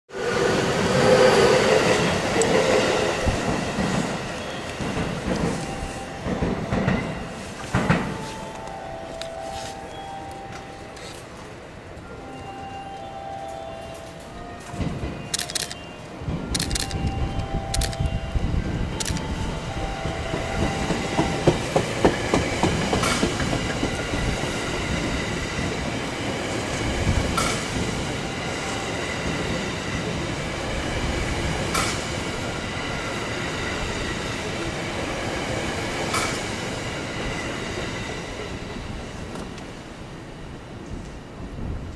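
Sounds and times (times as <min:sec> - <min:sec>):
train wheels rumbling on rail: 0:00.1 - 0:12.2, 0:13.5 - 0:41.9
sharp clicks: 0:15.3 - 0:15.9, 0:16.5 - 0:18.1.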